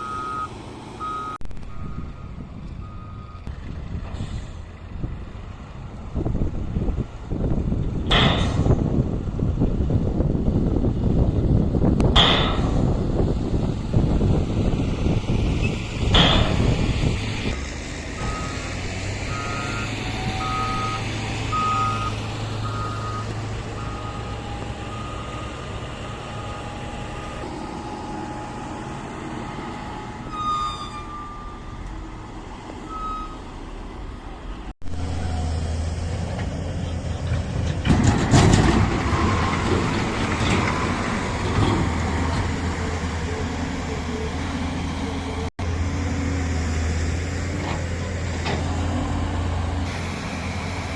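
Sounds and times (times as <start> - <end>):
reversing alarm beeping: 0.0 - 3.5, 18.2 - 18.7, 19.3 - 29.0, 29.6 - 31.8, 32.9 - 33.5
heavy machinery diesel engines: 0.0 - 50.9.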